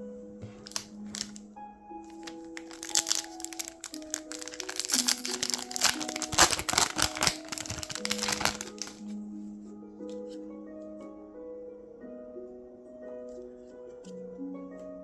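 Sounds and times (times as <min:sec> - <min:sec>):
soft background music: 0:00.0 - 0:15.0
foil wrapper crinkling and tearing: 0:00.6 - 0:01.4, 0:02.1 - 0:09.1.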